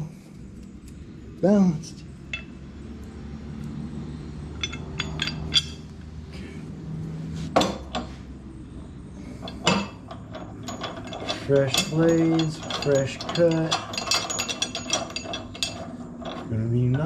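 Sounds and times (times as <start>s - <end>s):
low steady hum: 0.0s - 17.0s
metal parts clinking: 2.2s - 2.7s, 4.4s - 5.9s, 9.2s - 17.0s.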